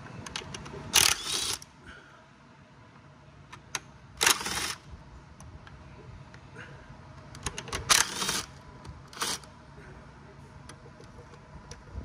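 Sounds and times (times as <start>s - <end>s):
ratchet wrench clicking: 1.0s - 1.6s.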